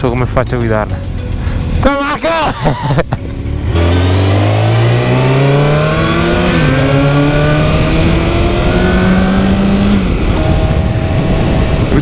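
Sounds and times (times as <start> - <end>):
motorcycle engine accelerating: 3.0 - 12.0
wind rush on microphone: 5.9 - 12.0.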